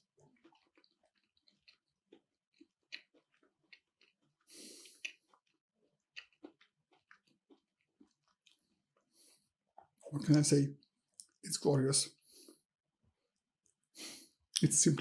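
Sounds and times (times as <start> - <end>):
wet chewing mouth clicks: 0.0 - 9.2
breath through nose: 4.5 - 5.0, 14.0 - 14.4.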